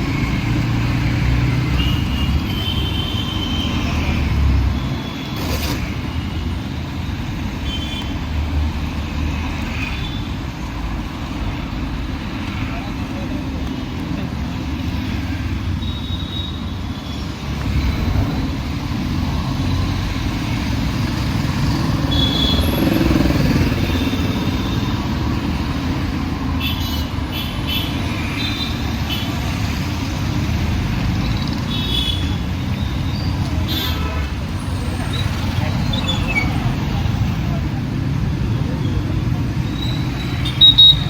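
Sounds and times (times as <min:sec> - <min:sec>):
city street traffic: 0:00.0 - 0:41.0
vehicle passing close: 0:17.8 - 0:25.1.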